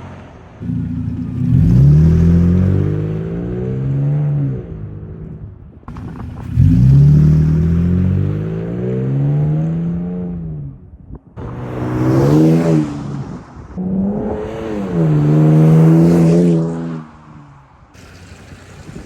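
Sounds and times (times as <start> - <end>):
pickup engine revving: 0.6 - 10.6.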